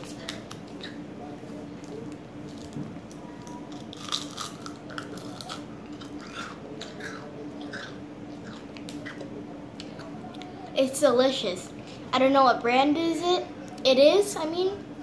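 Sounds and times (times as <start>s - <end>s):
icy crunches of freeze pop: 3.8s - 6.5s.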